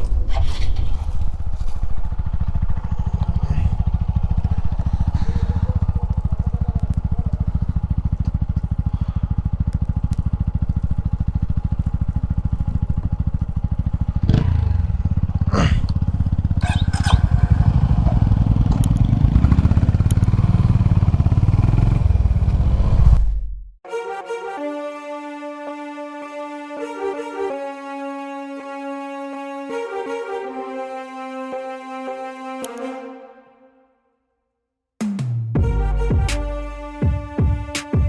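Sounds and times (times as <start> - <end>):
motorcycle engine thumping: 2.0 - 23.3.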